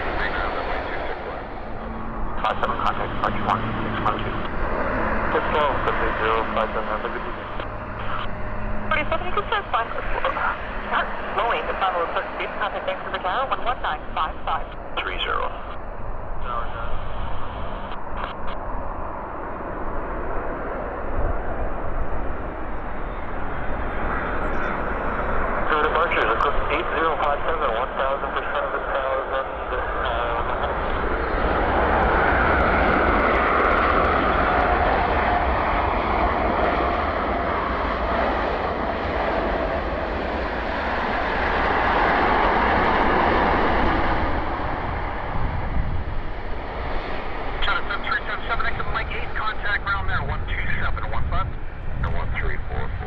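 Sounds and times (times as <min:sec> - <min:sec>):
faint whine: 0:00.0 - 0:53.0
jet airliner roar: 0:00.0 - 0:53.0
wind buffeting microphone: 0:30.5 - 0:53.0.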